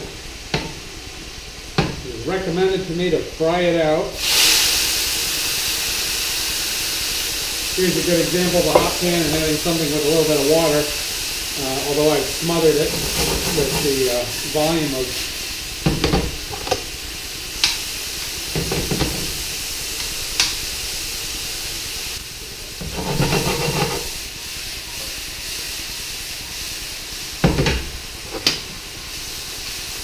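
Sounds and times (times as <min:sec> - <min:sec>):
root sizzling in hot oil: 0:00.0 - 0:30.0
utensil knocking and scraping pan: 0:12.0 - 0:14.2, 0:15.8 - 0:16.8, 0:18.5 - 0:19.4, 0:22.8 - 0:24.2.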